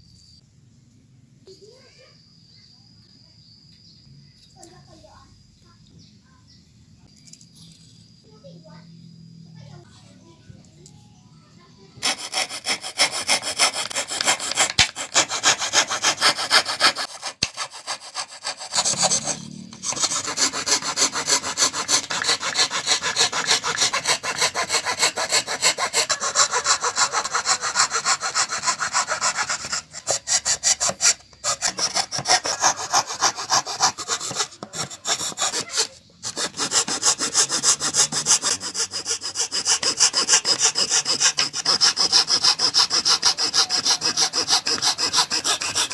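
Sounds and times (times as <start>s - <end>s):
hand saw cutting wood: 12.0s - 45.9s.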